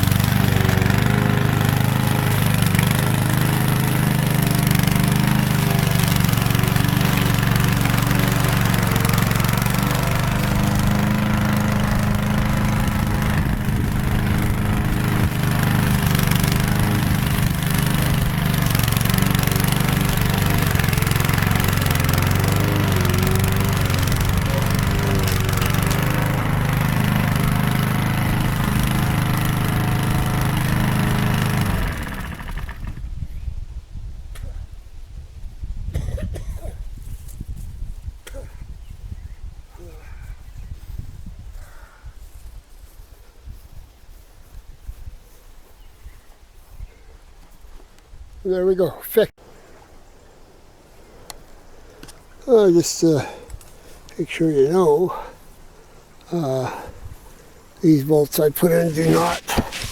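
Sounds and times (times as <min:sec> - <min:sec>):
lawn mower engine running: 0:00.0 - 0:33.1, 0:54.2 - 0:59.9.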